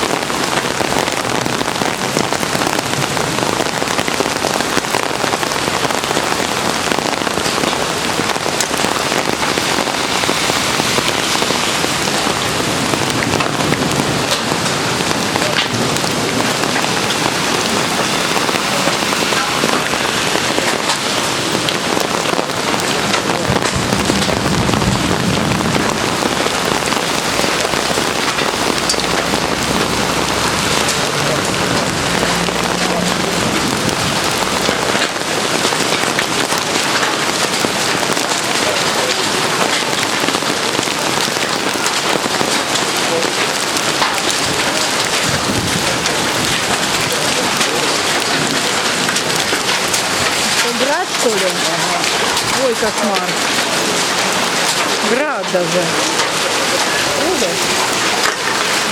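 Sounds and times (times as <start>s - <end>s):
heavy rain pouring: 0.0s - 58.9s
low rumble: 21.3s - 35.0s.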